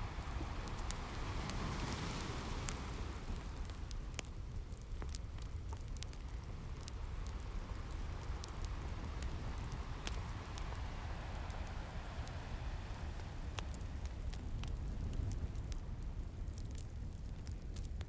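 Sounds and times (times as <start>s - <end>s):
ocean waves: 0.0s - 3.9s, 9.1s - 14.2s
wood fire crackling: 0.0s - 18.0s.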